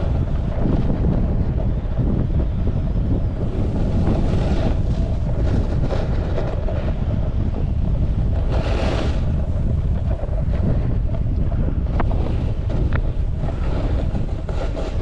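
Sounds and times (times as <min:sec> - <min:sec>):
board edge scraping snow: 0:00.0 - 0:15.0
snowboard sliding on snow: 0:00.0 - 0:15.0
wind buffeting microphone: 0:00.0 - 0:15.0.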